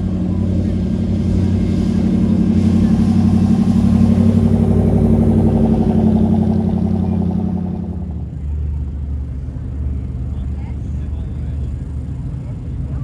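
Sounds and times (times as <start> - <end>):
car engine rumbling past: 0.0 - 13.0.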